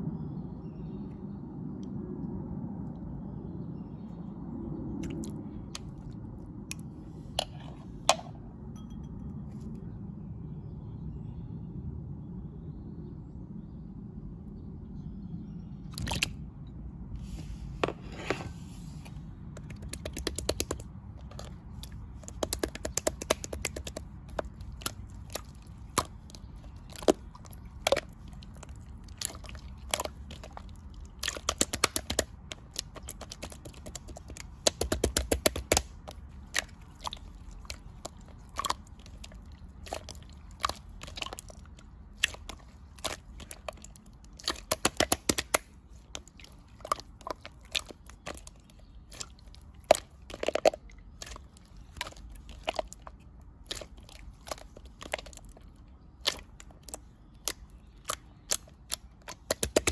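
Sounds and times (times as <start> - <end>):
slime squished by hand: 19.5 - 59.9.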